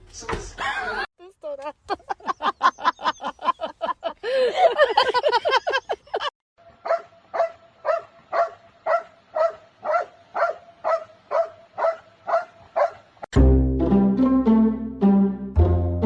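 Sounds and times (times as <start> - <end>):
dog barking: 6.8 - 13.1
music: 13.3 - 16.0.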